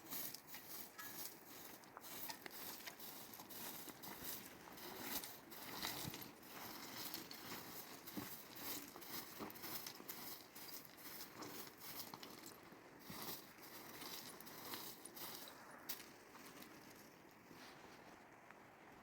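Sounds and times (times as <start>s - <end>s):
rustling: 0.0s - 18.2s.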